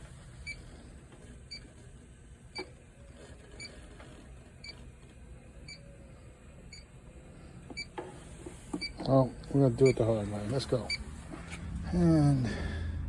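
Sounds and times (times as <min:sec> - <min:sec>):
leak detector beeping: 0:00.4 - 0:00.7, 0:02.5 - 0:02.8, 0:05.6 - 0:05.9, 0:06.7 - 0:06.9, 0:07.7 - 0:08.0, 0:08.8 - 0:11.2.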